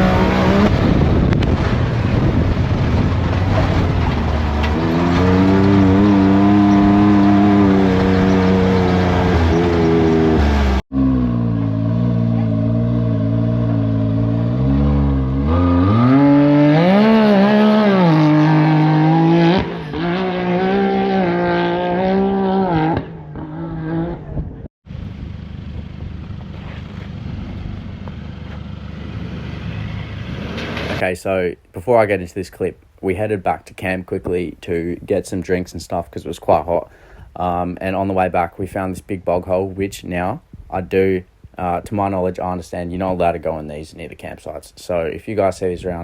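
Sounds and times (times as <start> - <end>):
buggy engine revving: 0.0 - 31.0.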